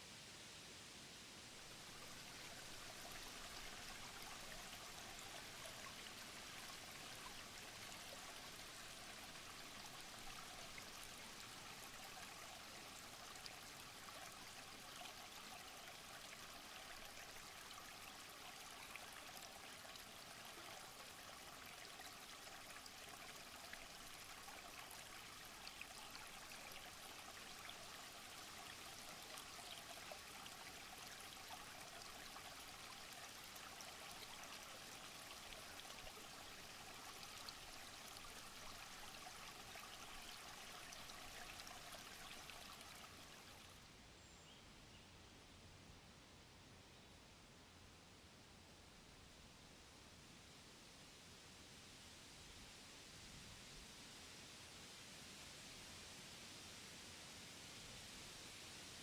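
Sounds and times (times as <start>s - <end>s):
water stream trickling: 1.4s - 44.0s.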